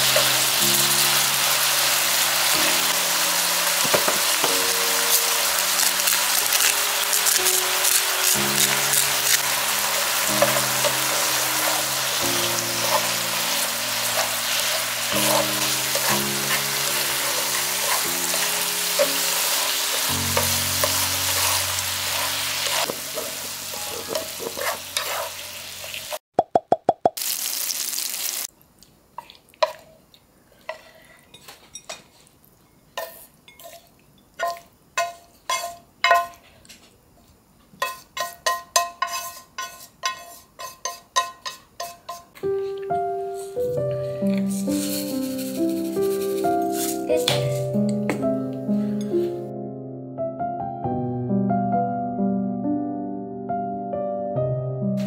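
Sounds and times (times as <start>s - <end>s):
vegetables sizzling in a frying pan: 0.0s - 26.2s, 27.2s - 28.5s, 37.8s - 42.7s, 43.6s - 47.8s
chopsticks scraping pan and plate: 5.6s - 26.2s, 30.6s - 32.3s, 33.0s - 36.5s, 37.8s - 47.9s
chopsticks tapping: 10.0s - 12.2s, 12.8s - 21.6s, 22.6s - 25.2s, 29.2s - 32.0s, 37.8s - 43.0s, 46.7s - 48.6s.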